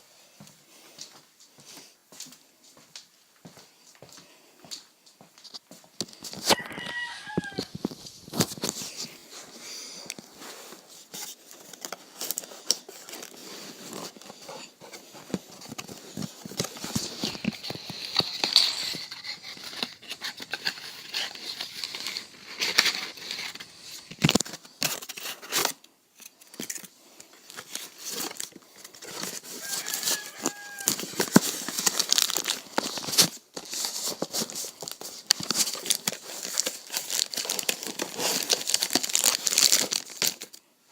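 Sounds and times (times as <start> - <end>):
wrapping crinkling: 6.2 - 40.7
packaging tearing: 11.2 - 25.8, 27.4 - 40.6.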